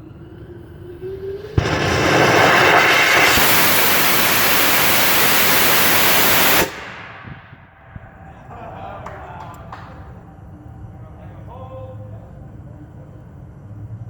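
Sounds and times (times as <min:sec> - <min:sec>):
rocket motor hissing roar: 0:00.0 - 0:07.7.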